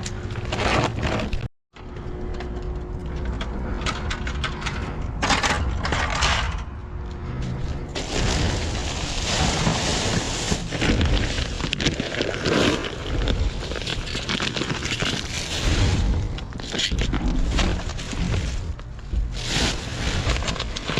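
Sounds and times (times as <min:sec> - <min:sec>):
steady low rumble: 0:01.3 - 0:20.9
bags rustling and crinkling: 0:08.0 - 0:20.9.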